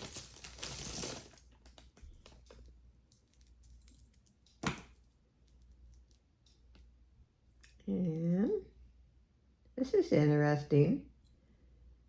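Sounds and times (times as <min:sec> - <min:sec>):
packaging crinkling: 0:00.0 - 0:04.2.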